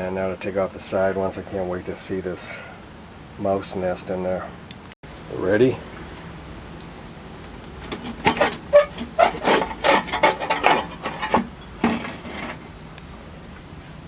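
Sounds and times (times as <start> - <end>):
scraping and rubbing on engine cover: 7.7 - 12.8.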